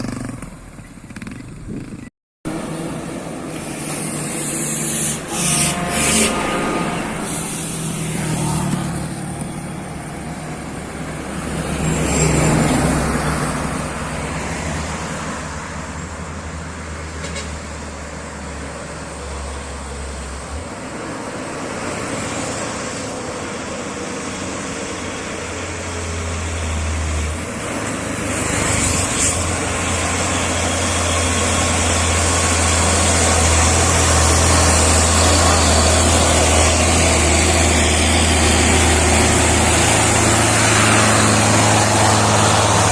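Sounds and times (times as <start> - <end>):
truck diesel engine droning: 0.0 - 42.9
vehicle passing close: 24.3 - 42.9.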